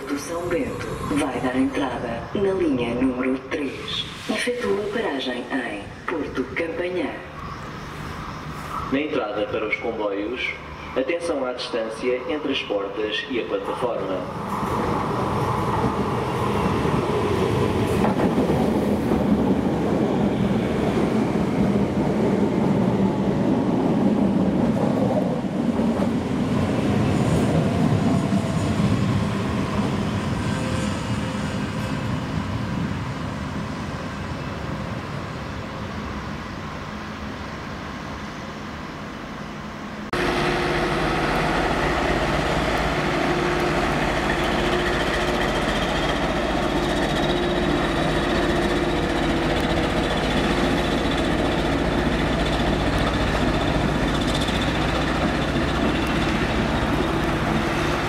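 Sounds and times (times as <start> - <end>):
electric train rumbling: 0.0 - 58.0
locomotive engine running: 40.1 - 58.0.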